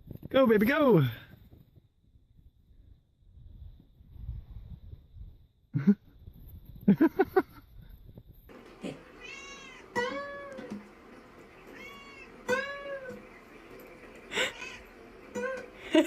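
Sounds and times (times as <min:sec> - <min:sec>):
cat meowing: 0:08.9 - 0:10.7, 0:11.6 - 0:13.2.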